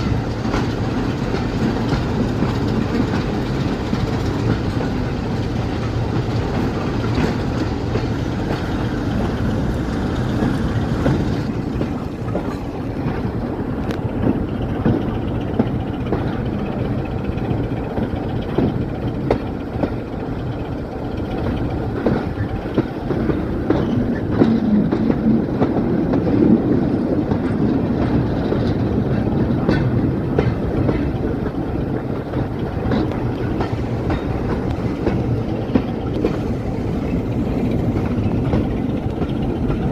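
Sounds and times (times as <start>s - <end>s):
train rumbling on track: 0.0s - 39.9s
wheels clicking over rail joints: 0.0s - 39.9s.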